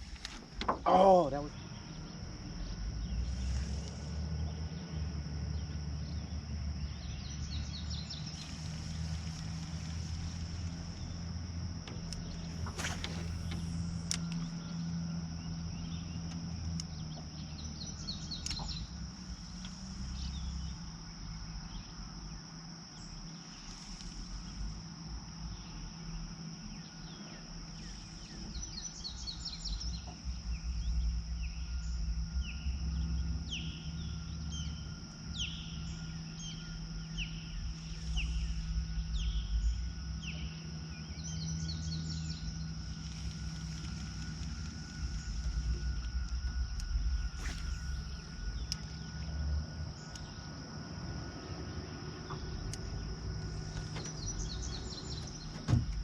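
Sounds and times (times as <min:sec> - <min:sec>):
high insect drone: 0:00.0 - 0:56.0
low steady hum and rumble: 0:00.0 - 0:56.0
birds chirping: 0:27.8 - 0:56.0.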